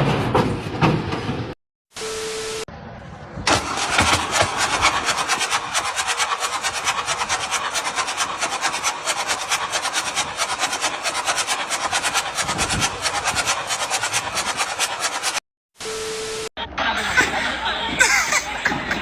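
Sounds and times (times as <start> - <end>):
machine mechanical rattle: 3.5 - 15.4.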